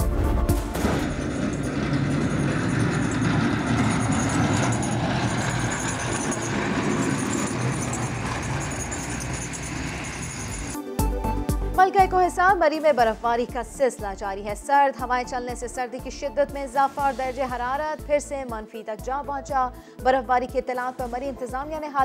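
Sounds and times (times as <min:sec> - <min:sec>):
traffic passing: 0:01.1 - 0:10.8.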